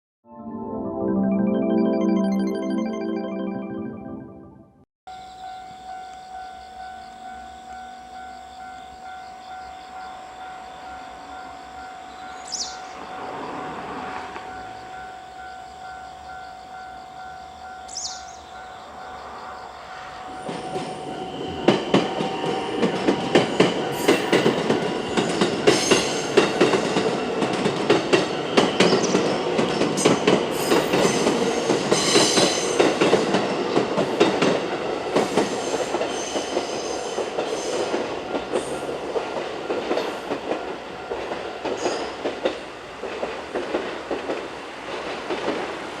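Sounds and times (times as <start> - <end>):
level crossing bell ringing: 0.4 - 4.6.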